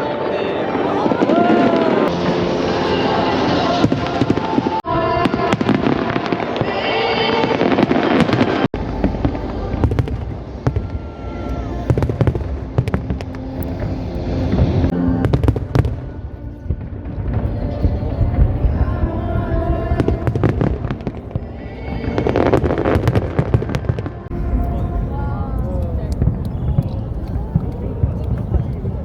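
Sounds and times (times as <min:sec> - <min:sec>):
music: 0:00.0 - 0:29.0
firework bangs and crackles: 0:01.2 - 0:29.0
heavy low firework booms: 0:08.2 - 0:29.0.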